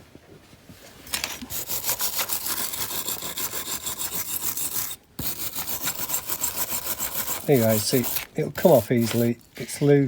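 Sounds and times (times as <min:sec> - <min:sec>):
wire brush scrubbing metal: 0:01.5 - 0:09.8.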